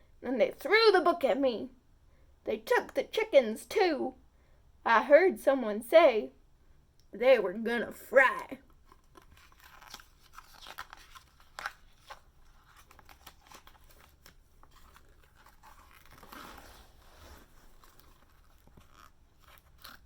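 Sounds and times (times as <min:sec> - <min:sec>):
paper pages rustling and turning: 0:08.7 - 0:20.0.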